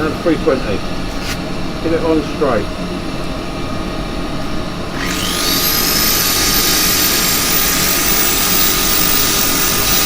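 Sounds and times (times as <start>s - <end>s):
lathe running: 5.0s - 10.0s
power sander whine: 5.0s - 10.0s.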